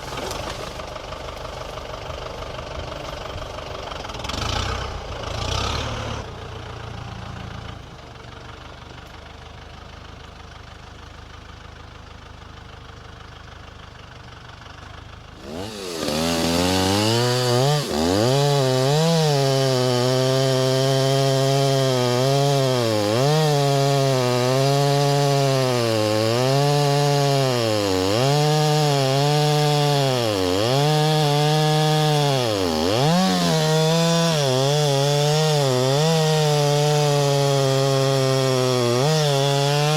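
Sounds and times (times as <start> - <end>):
chainsaw cutting log: 0.0 - 1.4, 3.1 - 6.3, 15.4 - 39.9
low engine idling: 0.0 - 4.3, 6.2 - 15.6.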